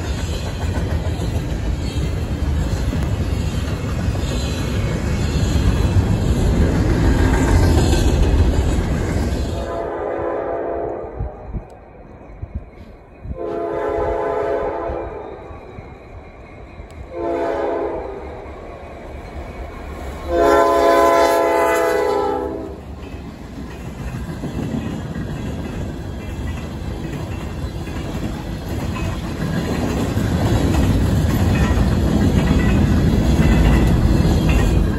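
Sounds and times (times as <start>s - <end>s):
train rumble and wheel noise: 0.0s - 34.9s
locomotive air horn blasts: 9.6s - 11.4s, 13.3s - 15.2s, 17.1s - 18.2s, 20.3s - 22.8s.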